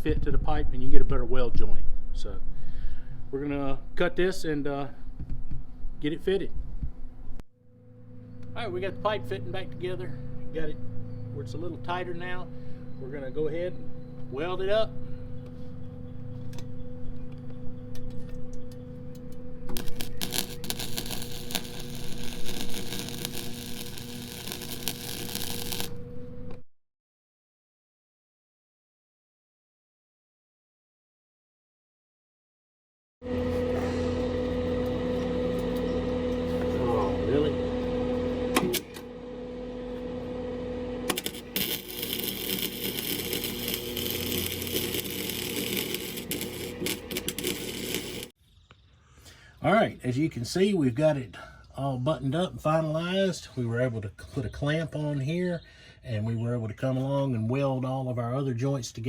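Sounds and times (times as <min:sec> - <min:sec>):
steady hum: 0:06.6 - 0:26.6, 0:33.2 - 0:48.4
arc welding crackle: 0:19.7 - 0:26.1, 0:41.0 - 0:48.4.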